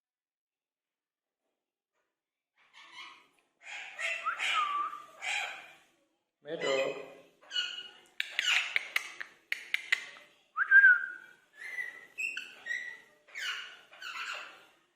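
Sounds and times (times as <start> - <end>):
parrots chattering: 2.7 - 5.9, 6.5 - 10.3, 11.5 - 14.8
parrot whistled calls: 3.8 - 5.1
sharp clicks: 8.2 - 10.2.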